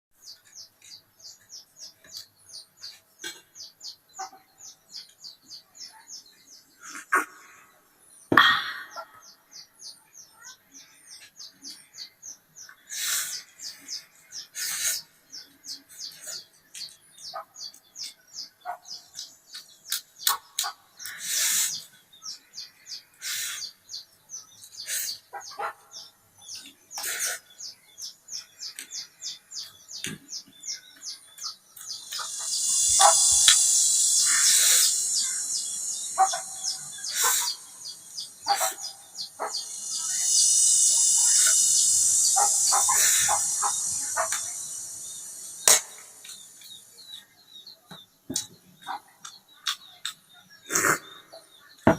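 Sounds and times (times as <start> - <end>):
birds chirping: 0.2 - 51.9
loud hiss: 32.0 - 38.2, 39.6 - 46.5.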